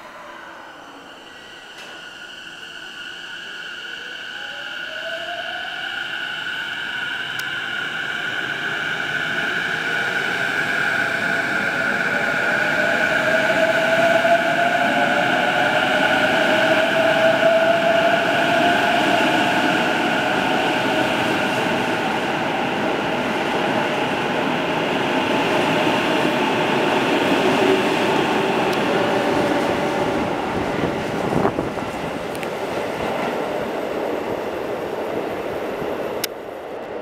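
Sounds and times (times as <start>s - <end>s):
wheels rumbling on rail: 25.6s - 37.0s.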